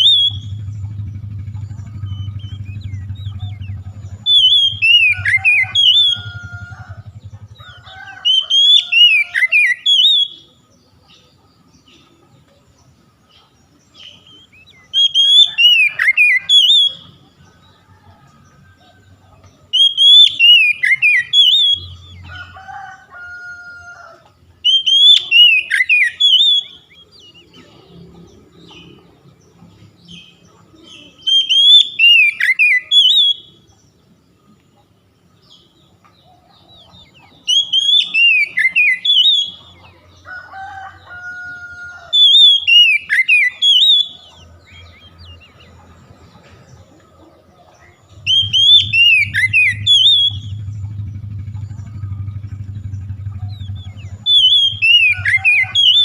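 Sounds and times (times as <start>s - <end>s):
bird song whistled phrases: 0.0s - 0.6s, 1.8s - 6.4s, 8.3s - 10.6s, 14.0s - 17.2s, 19.7s - 22.2s, 24.6s - 27.6s, 30.1s - 33.7s, 37.1s - 39.9s, 42.1s - 45.4s, 48.2s - 50.6s, 53.4s - 56.0s.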